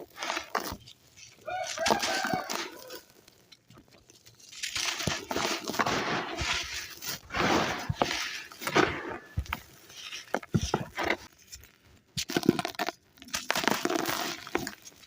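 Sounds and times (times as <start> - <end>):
sand crumbled by hand: 0.0 - 15.0.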